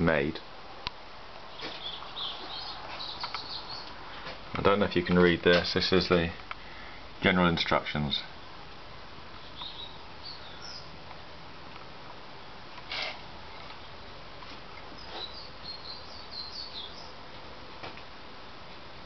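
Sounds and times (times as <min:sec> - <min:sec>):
steady background hiss: 0:00.0 - 0:19.0
faint bird chirps: 0:01.5 - 0:04.2, 0:09.4 - 0:11.0, 0:14.9 - 0:17.2.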